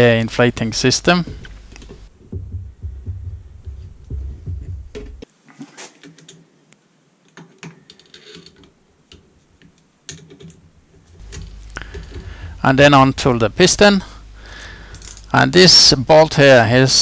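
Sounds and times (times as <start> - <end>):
low thumping handling noise: 1.1 - 5.3, 11.0 - 13.9.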